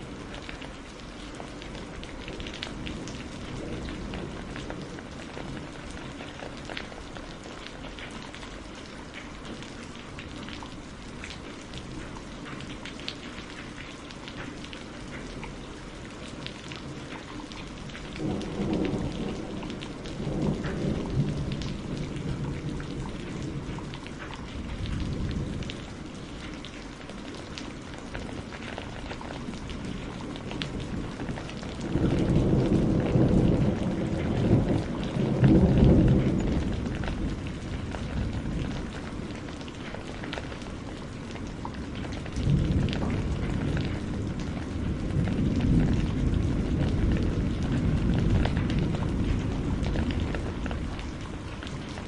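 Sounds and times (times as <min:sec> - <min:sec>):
steady rain falling: 0:00.0 - 0:52.0
distant thunder rumbling: 0:01.4 - 0:08.4, 0:17.0 - 0:26.6, 0:27.4 - 0:52.0.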